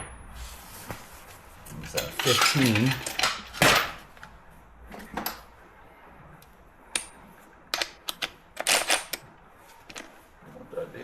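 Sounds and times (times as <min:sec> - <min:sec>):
metal hand tools clattering: 0:01.9 - 0:03.9.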